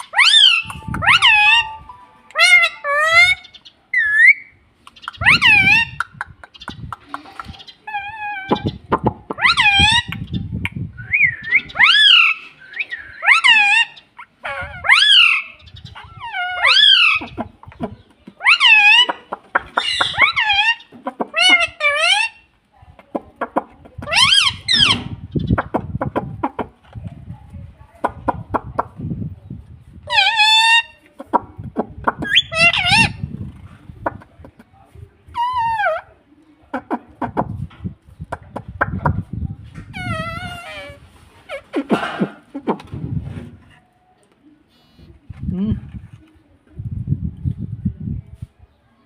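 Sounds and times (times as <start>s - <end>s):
parrot piercing calls: 0.0s - 6.0s, 9.4s - 10.1s, 11.1s - 17.3s, 30.1s - 31.0s, 32.2s - 33.2s
parakeet calling: 0.0s - 6.7s.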